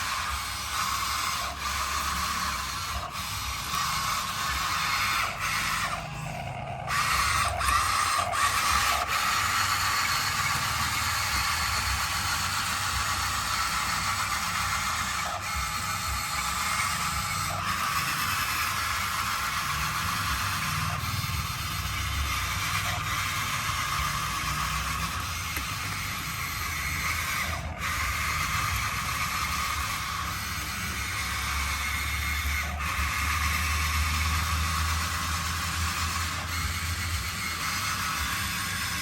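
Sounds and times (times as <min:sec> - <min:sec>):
toy motors whirring: 0:00.0 - 0:39.0.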